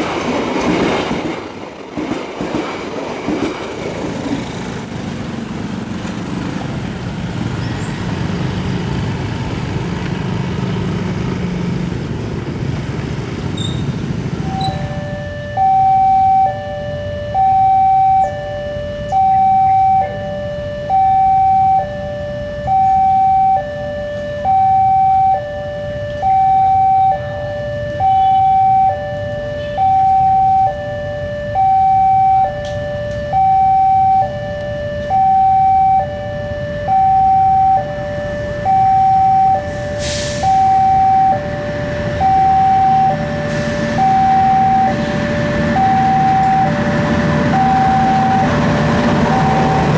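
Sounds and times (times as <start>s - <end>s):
low rumble of traffic: 0.0s - 49.9s
level crossing two-tone alarm: 14.4s - 49.9s.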